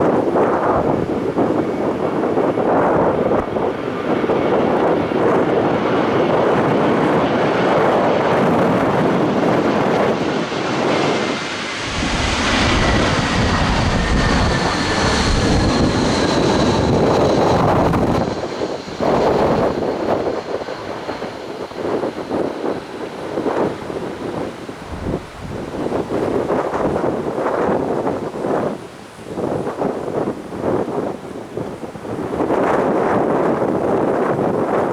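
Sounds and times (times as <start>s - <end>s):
jet engine whine: 0.0s - 34.9s
low jet rumble: 0.0s - 34.9s
wind buffeting microphone: 0.0s - 34.9s.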